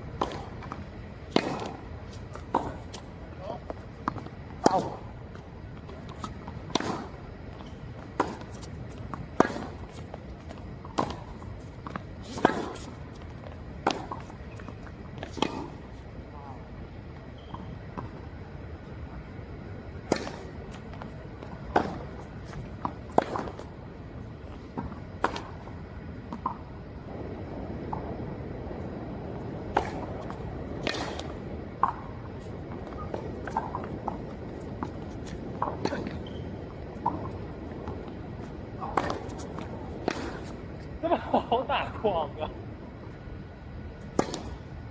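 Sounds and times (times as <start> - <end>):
steady background hiss: 0.0 - 44.9
tennis ball struck by rackets: 0.2 - 3.1, 6.2 - 13.2, 13.8 - 15.8, 20.0 - 23.8, 24.7 - 25.7, 29.6 - 40.9, 44.0 - 44.6
players' feet scuffing: 0.2 - 16.2, 28.8 - 42.5
ball bouncing on court: 38.8 - 40.5.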